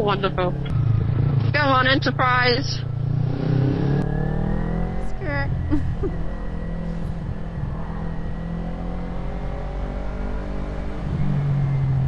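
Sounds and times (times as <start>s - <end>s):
motorcycle engine: 0.0s - 12.0s.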